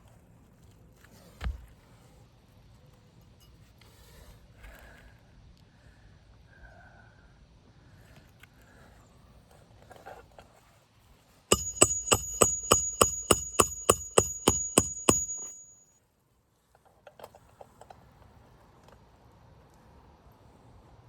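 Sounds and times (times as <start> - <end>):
hammer striking nail: 11.5 - 15.8.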